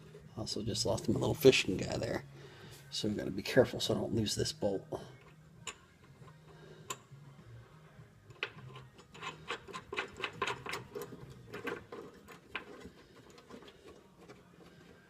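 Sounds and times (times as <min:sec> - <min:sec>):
ratchet wrench clicking: 0:06.8 - 0:07.1, 0:08.3 - 0:11.1.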